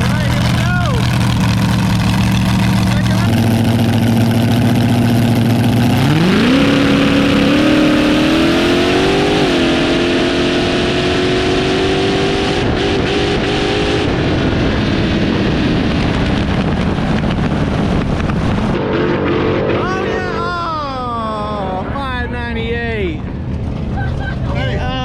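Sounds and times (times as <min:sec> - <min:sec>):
dragster engine revving: 0:00.0 - 0:24.0.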